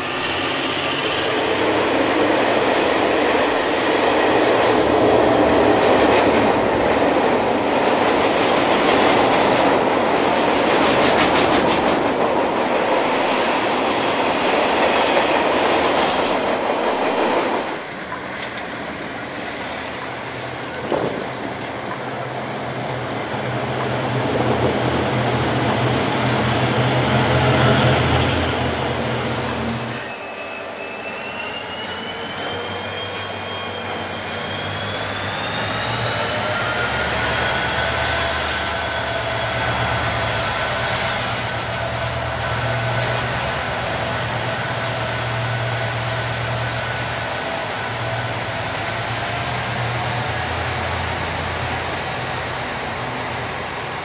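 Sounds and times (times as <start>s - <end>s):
wheel squeal: 0.0s - 6.0s, 29.8s - 52.1s
freight train rumbling and clattering: 0.0s - 30.1s
locomotive engine drone: 18.0s - 54.0s.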